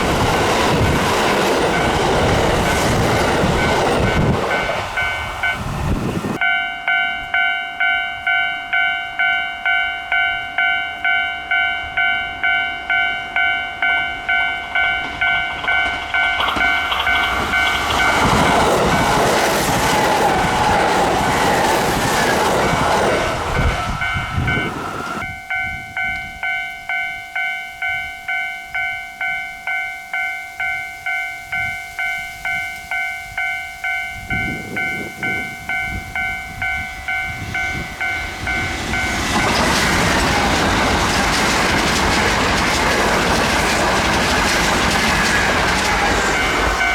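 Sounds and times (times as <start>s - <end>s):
level-crossing alarm ringing: 0.0s - 46.9s
train passing: 0.0s - 46.9s.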